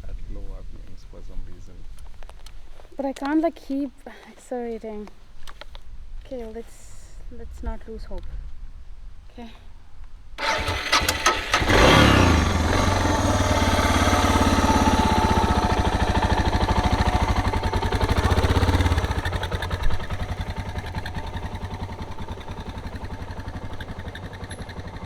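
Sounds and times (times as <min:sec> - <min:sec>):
motorcycle engine starting and idling: 0:10.4 - 0:25.0.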